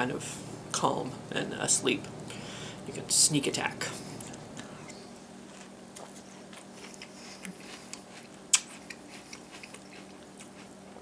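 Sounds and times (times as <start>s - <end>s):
chewing crunchy cereal: 5.4s - 11.0s.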